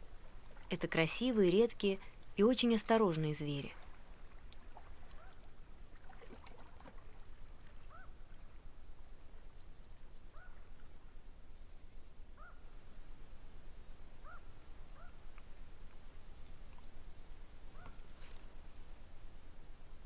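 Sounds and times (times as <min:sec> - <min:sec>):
bird calling: 0:07.8 - 0:08.7, 0:10.2 - 0:10.8, 0:12.4 - 0:12.6, 0:14.2 - 0:15.2, 0:17.7 - 0:18.1.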